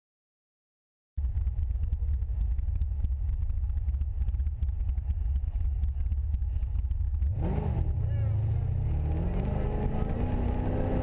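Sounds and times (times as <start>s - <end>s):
car engine idling: 1.2s - 11.0s
car revving and pulling away: 4.2s - 11.0s.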